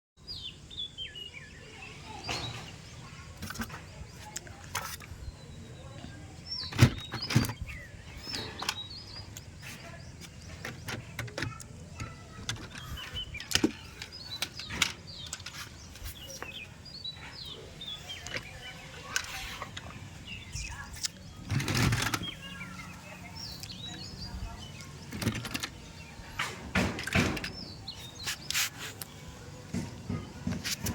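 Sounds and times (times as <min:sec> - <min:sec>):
small birds chirping: 0:00.2 - 0:30.9
sharp clicks and knocks: 0:06.7 - 0:16.6, 0:24.8 - 0:29.1.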